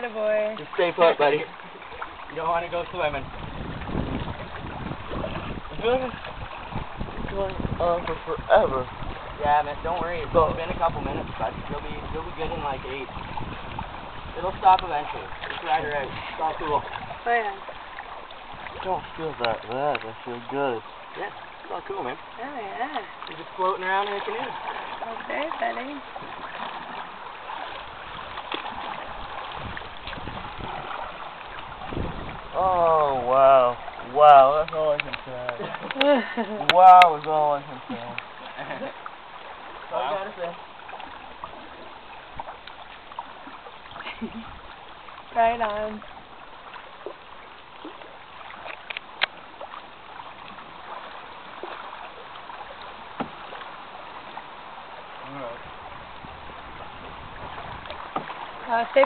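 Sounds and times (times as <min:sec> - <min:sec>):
water lapping around canoe: 0:00.0 - 0:59.0
knocks against canoe: 0:27.6 - 0:32.4, 0:53.0 - 0:53.7, 0:57.5 - 0:59.0.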